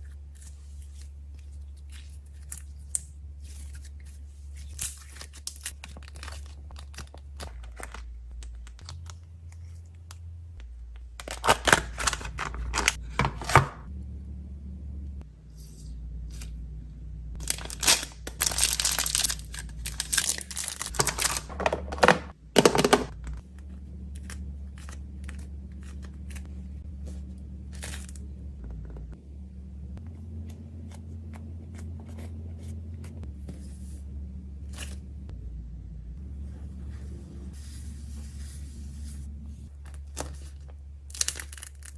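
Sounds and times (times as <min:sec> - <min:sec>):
steady low hum: 0:00.0 - 0:41.9
plastic packaging crinkling and tearing: 0:04.9 - 0:09.3, 0:11.2 - 0:13.6, 0:17.4 - 0:22.1.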